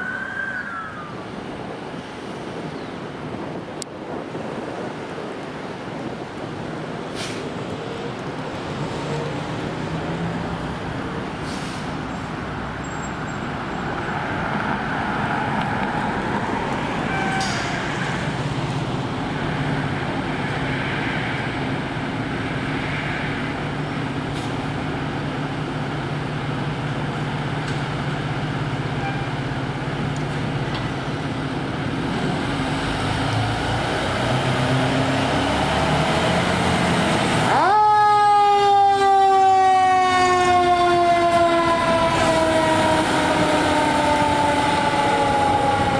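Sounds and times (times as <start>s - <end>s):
traffic: 0.0s - 45.9s
heavy vehicle engine: 6.9s - 37.6s, 40.3s - 45.9s.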